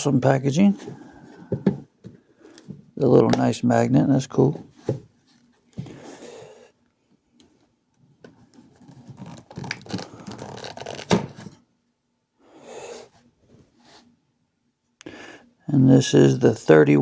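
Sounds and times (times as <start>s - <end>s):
packaging scratching and scraping: 8.6s - 11.6s
packaging rustle: 8.7s - 11.5s.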